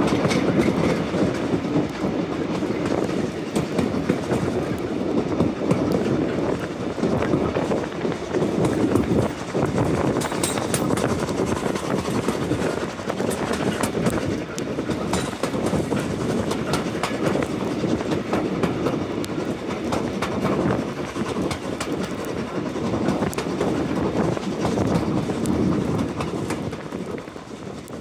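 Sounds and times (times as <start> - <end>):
rumble of train wheels on rail: 0.0 - 28.0
clicks over rail joints: 6.6 - 28.0.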